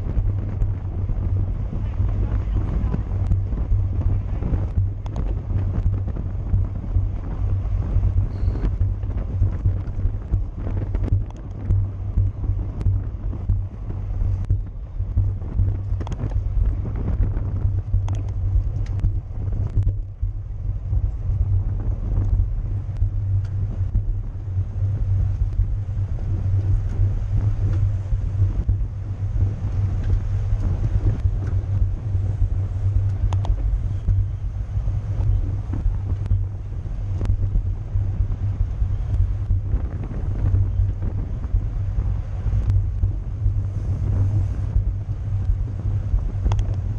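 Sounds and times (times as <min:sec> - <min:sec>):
wind buffeting microphone: 0:00.0 - 0:46.9
small clicks and rattles: 0:08.3 - 0:11.9, 0:15.4 - 0:20.2, 0:45.4 - 0:46.9.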